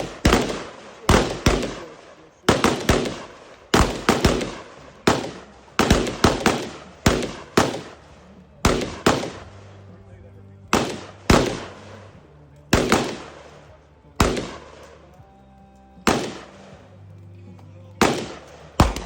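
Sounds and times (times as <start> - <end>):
gunshots echoing: 0.0 - 10.0, 10.6 - 15.3, 16.0 - 19.0.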